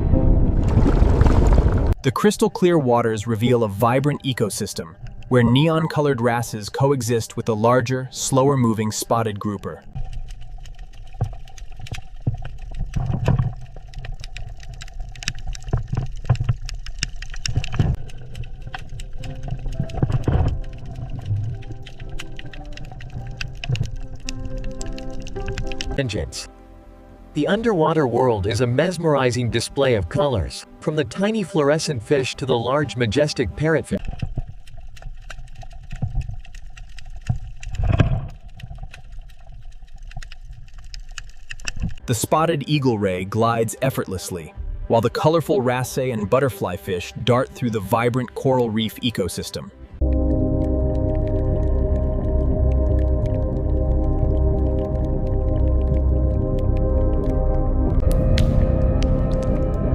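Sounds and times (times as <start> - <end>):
low underwater rumble: 0.0 - 2.0, 9.8 - 26.0, 34.0 - 42.1, 50.0 - 59.9
underwater bubbling: 0.0 - 2.0, 8.7 - 26.0, 34.0 - 42.1, 50.0 - 59.9
irregular clicking and crackling: 4.8 - 7.6, 8.3 - 26.2, 34.0 - 42.3, 50.0 - 59.9.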